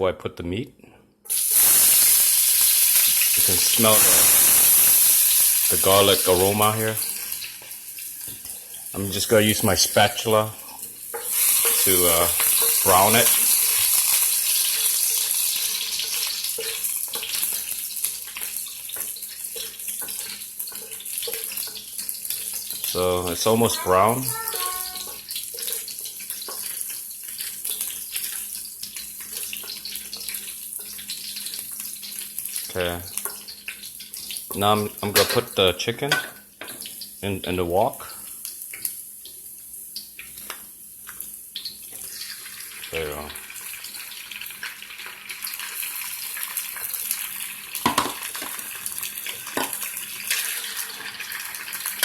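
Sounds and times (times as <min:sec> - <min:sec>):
garlic sizzling in oil: 0:01.3 - 0:52.0.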